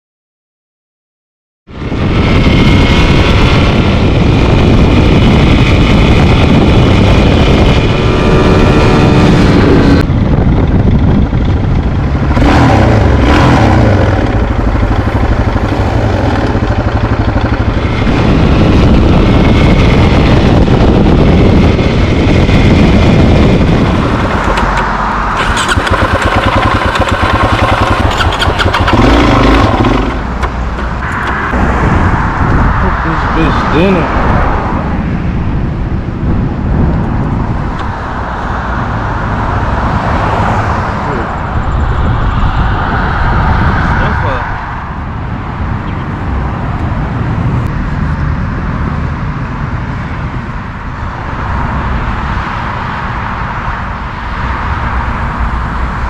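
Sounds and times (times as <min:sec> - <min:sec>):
motorcycle engine revving: 0:01.9 - 0:34.0.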